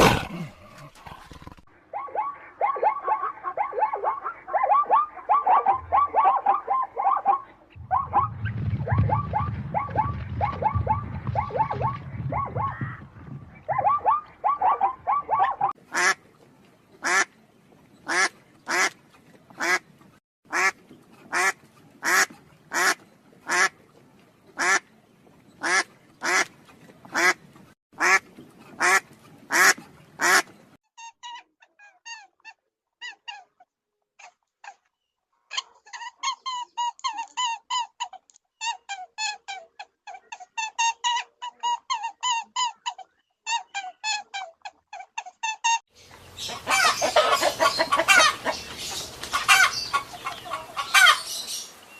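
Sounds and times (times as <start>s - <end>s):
animal calls: 0.0s - 15.8s, 46.4s - 51.6s.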